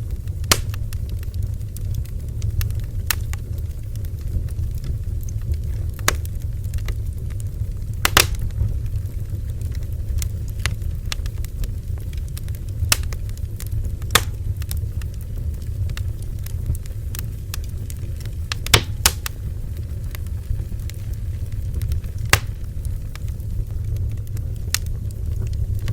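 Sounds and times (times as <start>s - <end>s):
bonfire flames rumbling: 0.0s - 25.9s
wood crackling and popping: 0.0s - 25.9s.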